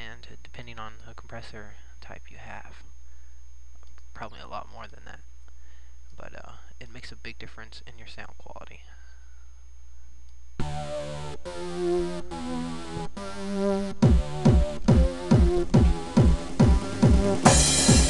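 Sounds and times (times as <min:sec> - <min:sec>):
synth chords: 0:10.6 - 0:18.0
deep kick drums: 0:14.0 - 0:18.0.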